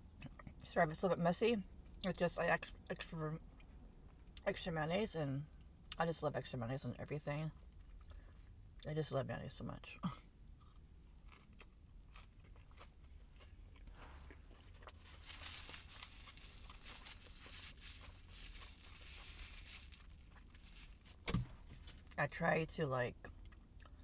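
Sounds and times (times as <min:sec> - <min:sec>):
faint low hum: 0:00.0 - 0:24.0
person chewing food: 0:10.6 - 0:21.0, 0:23.3 - 0:24.0.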